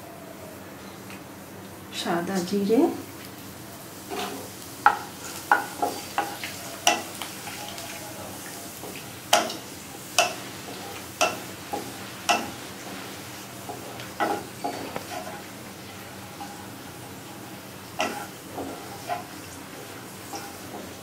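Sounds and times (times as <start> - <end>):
oil sizzling: 2.3 - 21.0
wooden spatula scraping pan: 12.9 - 21.0.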